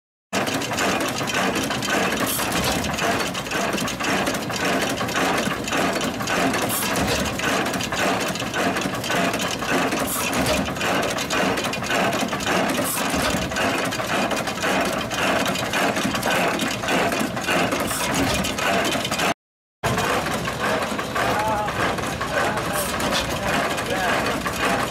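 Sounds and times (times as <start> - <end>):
mill mechanical clatter: 0.4 - 24.9
gas engine stroke: 0.7 - 19.3.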